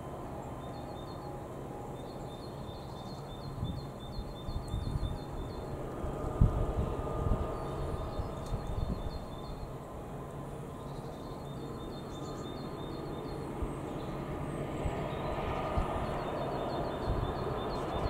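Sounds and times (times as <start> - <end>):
freight train rumbling: 0.0 - 18.0
bird chirping: 2.0 - 5.7, 7.5 - 9.7, 10.8 - 14.3, 15.0 - 18.0.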